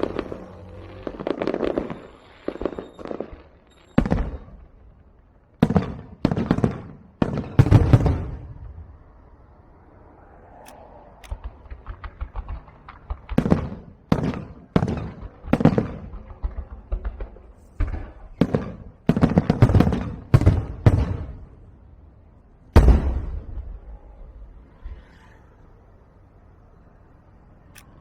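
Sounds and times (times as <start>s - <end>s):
fireworks small sharp cracks: 0.0s - 9.0s, 10.6s - 21.7s
fireworks heavy bangs rumbling: 0.0s - 9.2s, 11.3s - 24.8s.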